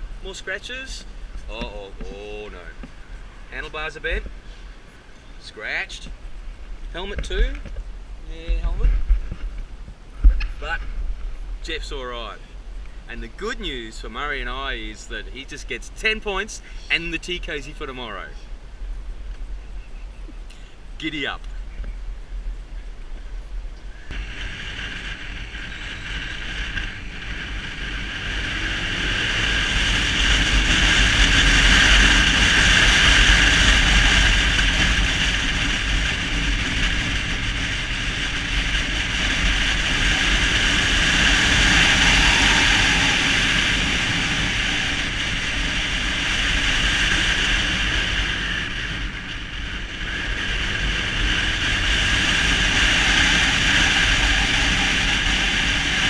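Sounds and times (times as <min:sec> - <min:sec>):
wind rushing over microphone: 0:00.0 - 0:56.0
motorbike engine: 0:24.1 - 0:56.0.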